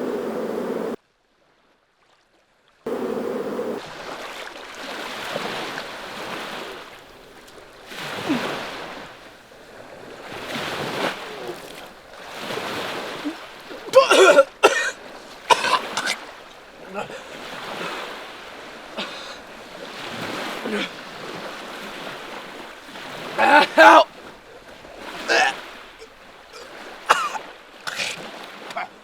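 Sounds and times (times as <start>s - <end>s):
waves breaking on shore: 2.9s - 29.0s
man's voice: 23.4s - 24.1s.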